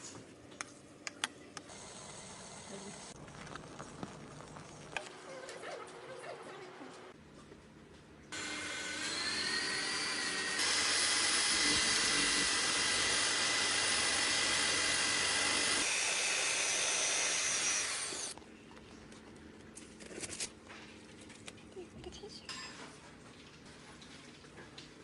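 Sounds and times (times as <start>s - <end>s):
electric drill whining: 8.4s - 18.4s.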